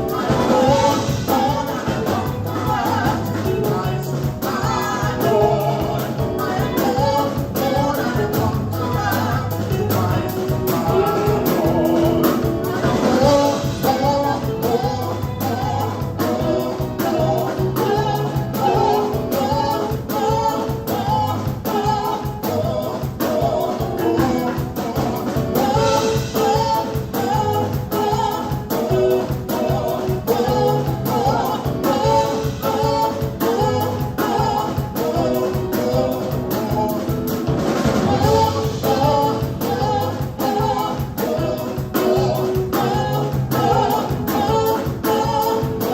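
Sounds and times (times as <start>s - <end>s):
bass line: 0.0s - 45.9s
drum kit beat: 0.0s - 45.9s
group of singers: 0.0s - 45.9s.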